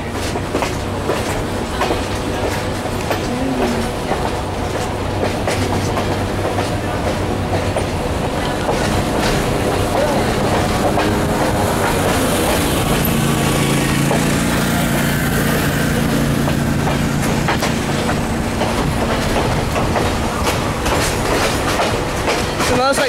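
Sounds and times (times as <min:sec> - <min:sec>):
train wheels rumbling: 0:00.0 - 0:23.0
wheels clacking over rail joints: 0:00.0 - 0:23.0.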